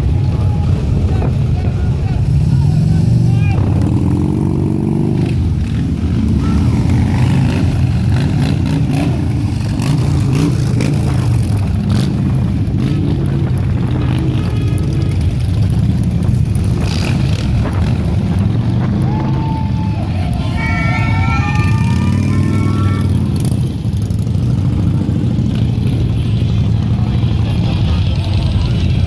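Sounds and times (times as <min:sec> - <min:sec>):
motorcycle engines rumbling: 0:00.0 - 0:29.0.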